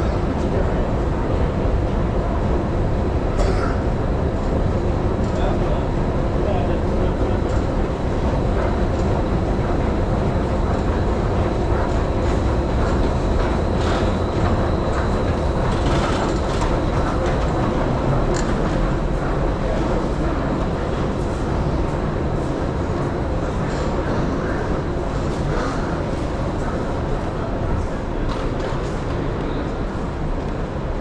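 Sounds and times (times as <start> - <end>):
metro train rumbling: 0.0 - 31.0
rail clicks: 7.4 - 21.5.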